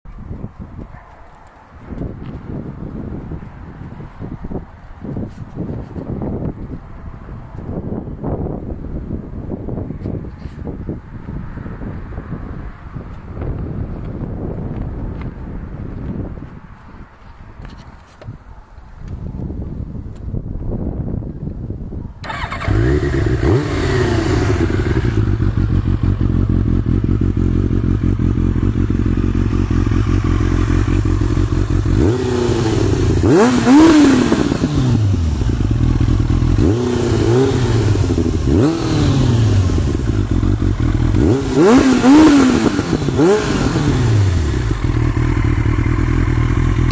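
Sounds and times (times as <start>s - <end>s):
quad engine revving: 22.2s - 46.9s.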